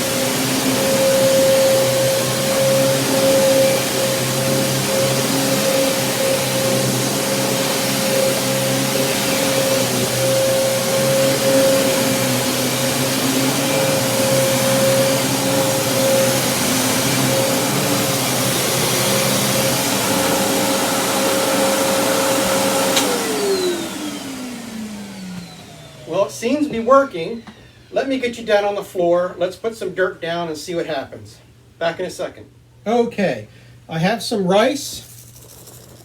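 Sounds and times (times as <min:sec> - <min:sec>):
upright vacuum cleaner running: 0:00.0 - 0:28.7
vacuum switch click: 0:22.9 - 0:23.2.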